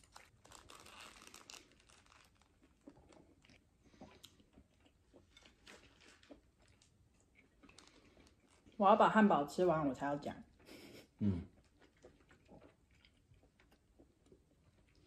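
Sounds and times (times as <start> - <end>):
paper wrapper crinkling: 0.0 - 3.2, 7.7 - 8.7
chewing and soft crunches: 0.0 - 9.6, 11.5 - 15.0.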